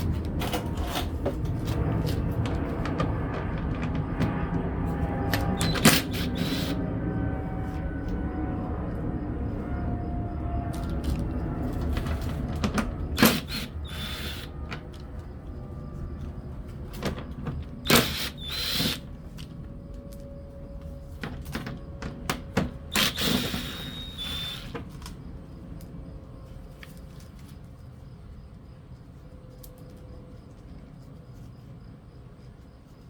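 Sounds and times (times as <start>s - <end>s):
tools and metal clattering: 0.0s - 4.4s
low rumble: 0.0s - 21.0s
high squeaks: 5.4s - 6.8s, 22.9s - 24.7s.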